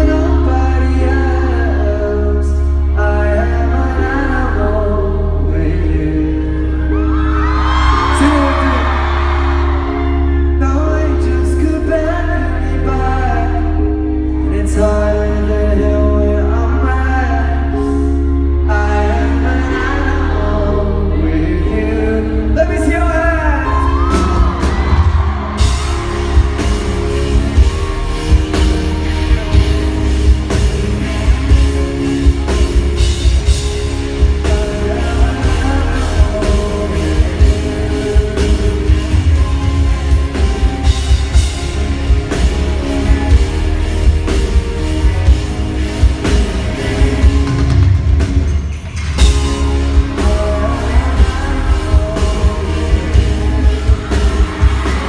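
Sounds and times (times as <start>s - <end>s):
person singing: 0.0s - 48.0s, 49.2s - 55.0s
live pop band: 0.0s - 55.0s
crowd shouting: 7.0s - 10.6s, 23.7s - 34.2s, 49.4s - 55.0s
steady drum beat: 24.1s - 55.0s.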